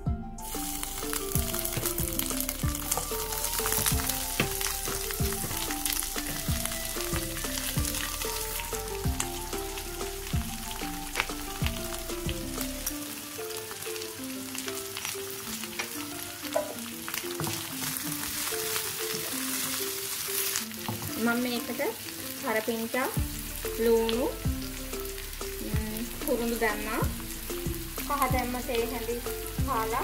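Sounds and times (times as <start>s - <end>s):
background music with a beat: 0.0s - 20.0s, 23.2s - 30.0s
oil popping: 0.4s - 21.2s
food sizzling in hot oil: 0.4s - 30.0s.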